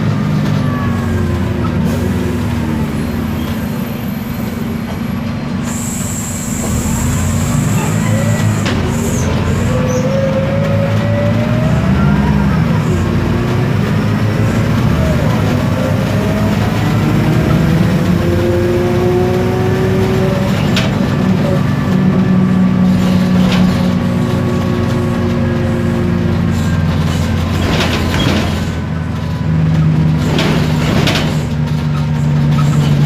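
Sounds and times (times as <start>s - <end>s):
bus diesel engine drone: 0.0s - 33.0s
sharp knocks and rattles: 26.6s - 33.0s.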